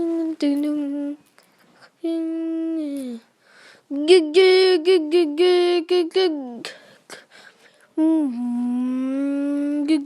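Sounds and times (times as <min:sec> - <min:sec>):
high voice singing wordless notes: 0:00.0 - 0:01.3, 0:02.0 - 0:03.3, 0:03.9 - 0:07.3, 0:07.9 - 0:10.0.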